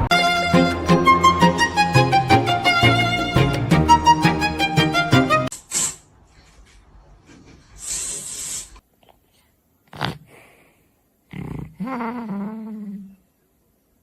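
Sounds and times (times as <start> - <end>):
animal snorting and breathing: 9.9 - 10.7, 11.3 - 12.4.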